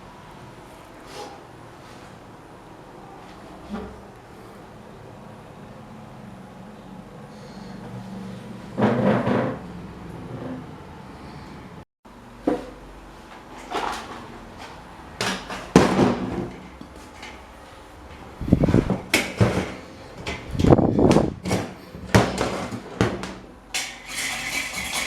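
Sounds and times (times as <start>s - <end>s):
metal fan parts clattering: 13.4s - 25.0s
scraping noise: 18.2s - 22.1s.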